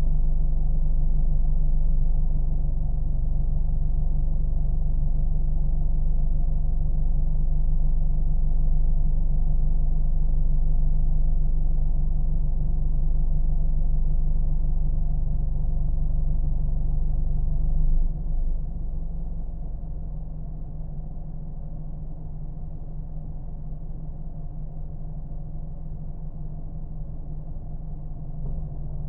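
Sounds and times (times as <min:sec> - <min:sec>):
car engine droning: 0:28.2 - 0:29.0.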